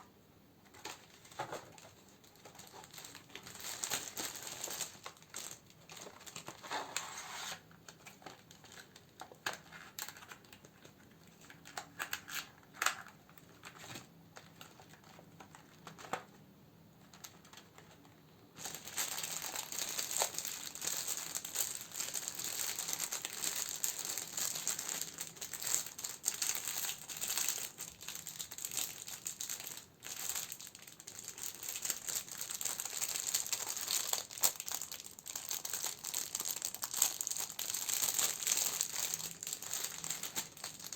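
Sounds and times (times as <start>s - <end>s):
plastic and paper crinkling: 0.6s - 16.4s, 17.0s - 40.9s.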